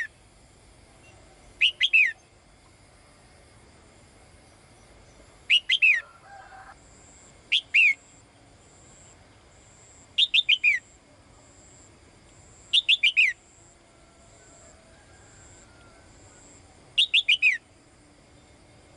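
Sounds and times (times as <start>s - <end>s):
songbird whistled calls: 1.0s - 2.4s, 5.5s - 6.1s, 7.5s - 8.1s, 10.2s - 10.9s, 12.7s - 13.4s, 17.0s - 17.7s.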